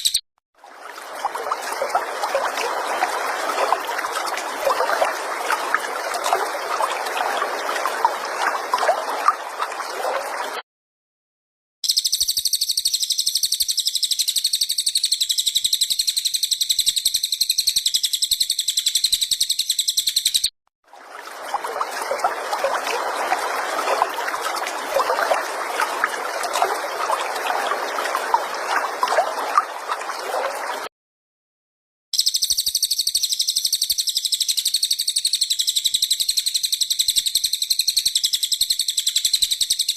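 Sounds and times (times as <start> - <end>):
bird high-pitched trill: 0.0 - 0.2, 11.8 - 20.5, 32.2 - 39.9.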